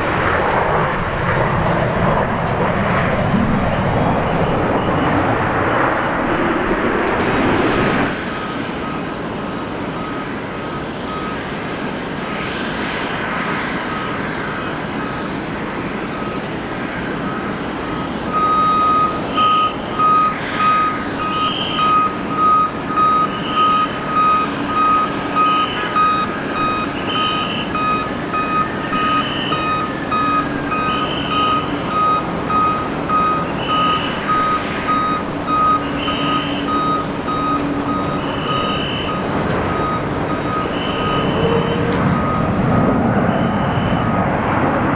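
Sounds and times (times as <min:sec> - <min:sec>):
airport background noise: 0:00.0 - 0:44.9
jet aircraft noise: 0:00.0 - 0:44.9
reversing alarm beeping: 0:08.1 - 0:11.6, 0:16.1 - 0:16.5, 0:17.1 - 0:44.3.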